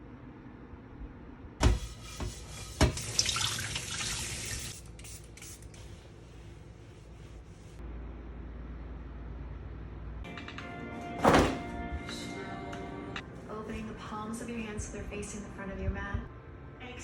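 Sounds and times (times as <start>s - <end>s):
water running and splashing: 2.8s - 4.8s.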